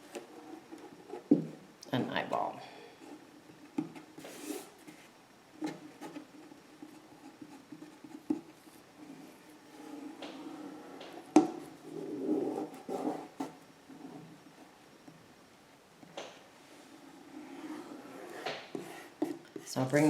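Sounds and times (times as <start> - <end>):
paper scratching and rustling: 4.2 - 5.1.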